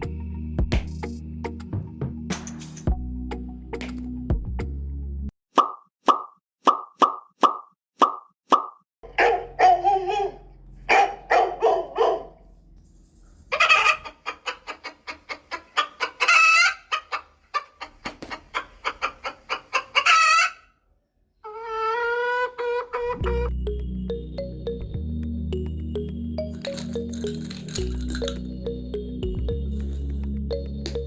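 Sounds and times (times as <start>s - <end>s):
chickens clucking: 13.4s - 20.7s, 21.4s - 23.2s.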